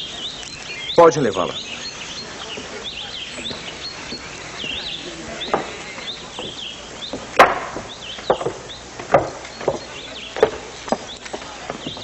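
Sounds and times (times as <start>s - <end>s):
birds chirping: 0.0s - 12.0s
sharp wooden knocks: 5.5s - 5.8s, 6.4s - 12.0s.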